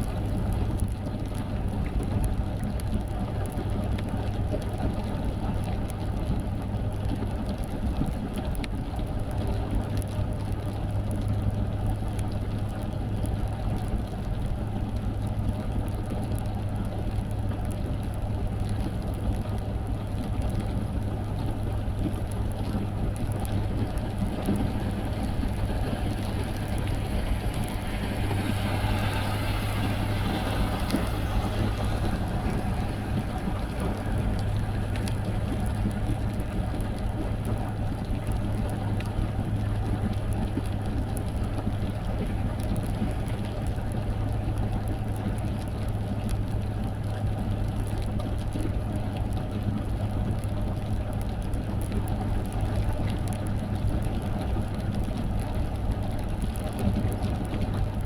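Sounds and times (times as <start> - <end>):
car engine and tyres drone: 23.2 - 38.4
hiss of water spray: 25.7 - 35.2.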